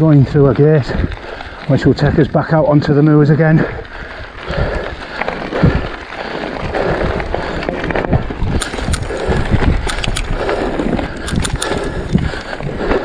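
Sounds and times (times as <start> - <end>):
bike knocking and rattling: 0.0 - 13.0
bike tyre noise: 0.0 - 13.0
sharp clicks: 8.5 - 12.3.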